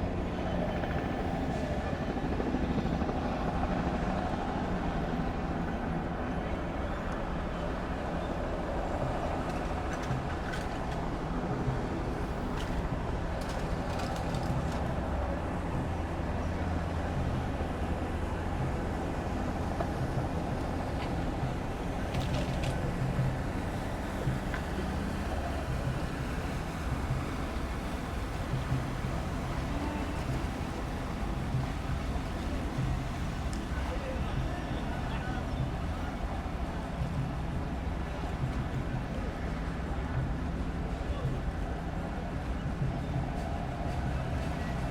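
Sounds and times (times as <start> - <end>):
engine droning: 0.0 - 44.9
faint clicks: 12.5 - 15.0.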